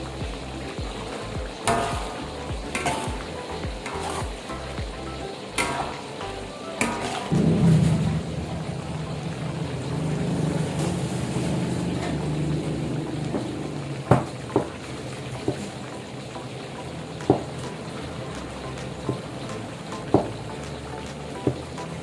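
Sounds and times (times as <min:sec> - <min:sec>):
food sizzling in a pan: 0:00.0 - 0:22.0.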